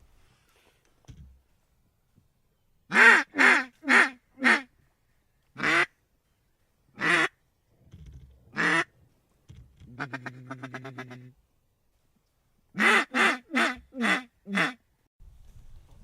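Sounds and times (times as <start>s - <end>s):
duck quacking: 2.9s - 4.7s, 5.6s - 5.9s, 7.0s - 7.3s, 8.5s - 8.9s, 9.9s - 11.3s, 12.8s - 14.8s.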